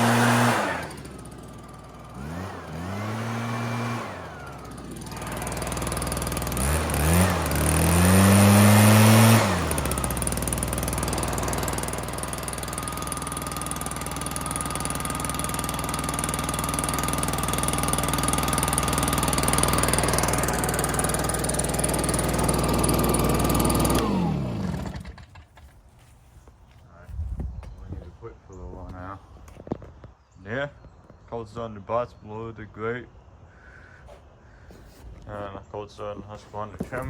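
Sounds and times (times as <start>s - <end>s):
leaf blower engine revving: 0.0s - 25.7s, 34.7s - 37.0s.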